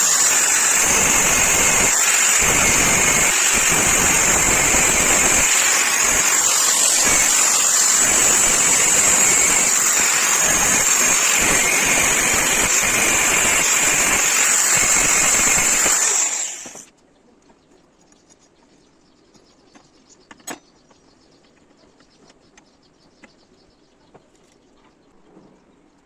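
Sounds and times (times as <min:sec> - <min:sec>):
power tool running: 0:00.0 - 0:16.9.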